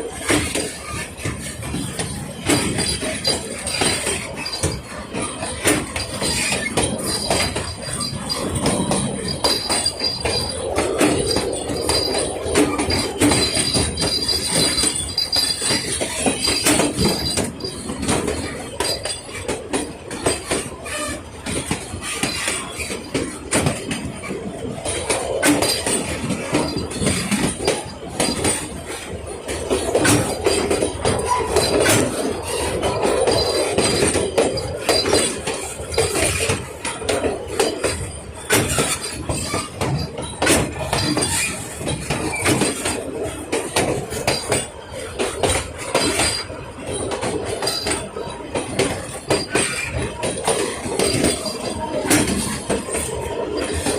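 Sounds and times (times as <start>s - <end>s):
train wheels clattering on rails: 0.0s - 53.9s
high wheel squeal: 0.2s - 19.5s.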